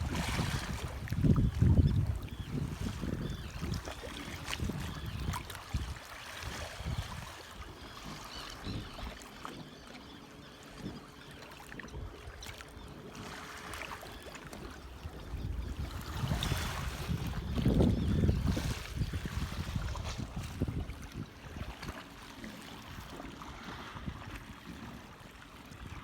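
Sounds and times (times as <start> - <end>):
wind rumble on microphone: 0.0 - 9.1, 14.8 - 22.0, 22.9 - 25.0
water splashing around kayak: 0.0 - 26.0.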